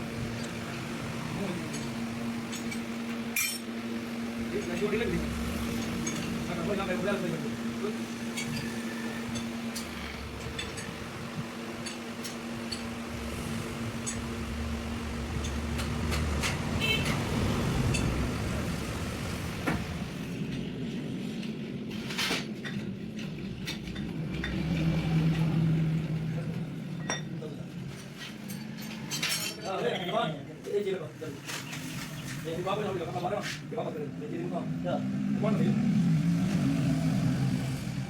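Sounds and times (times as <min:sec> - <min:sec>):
steady hum: 0:00.0 - 0:21.9
metallic clinks of parts and tools: 0:02.5 - 0:03.7, 0:28.0 - 0:30.2.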